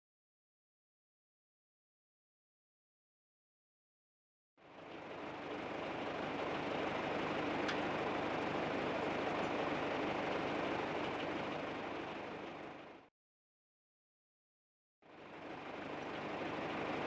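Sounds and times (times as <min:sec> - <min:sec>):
tractor diesel engine running: 0:04.6 - 0:13.1, 0:15.2 - 0:17.0.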